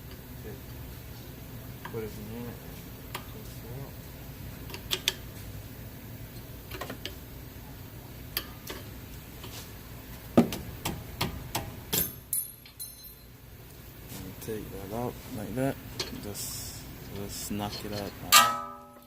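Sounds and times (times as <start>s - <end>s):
sharp metal knocks: 18.3s - 19.0s.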